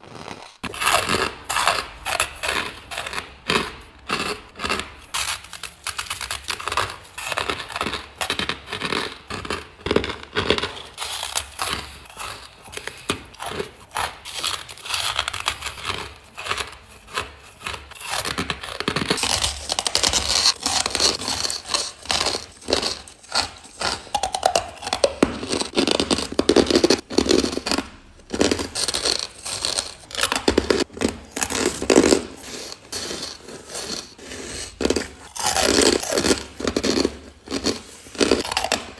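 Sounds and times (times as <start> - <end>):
chewing ice: 0.0 - 38.9.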